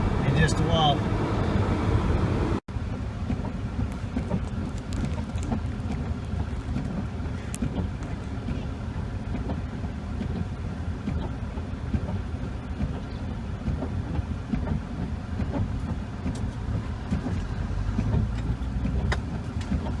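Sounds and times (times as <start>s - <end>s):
car engine and tyres rumbling: 0.0s - 20.0s
small irregular knocks and clicks: 12.8s - 20.0s.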